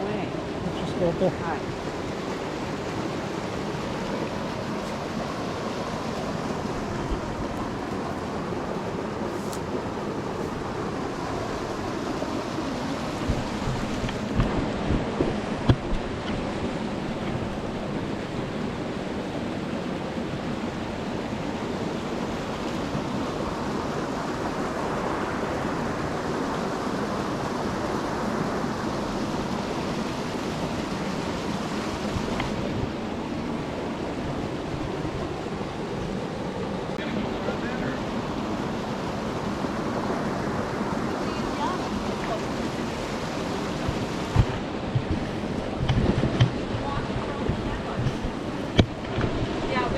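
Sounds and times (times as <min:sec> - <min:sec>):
water rushing over waterfall: 0:00.0 - 0:49.9
low thumps: 0:44.3 - 0:49.4.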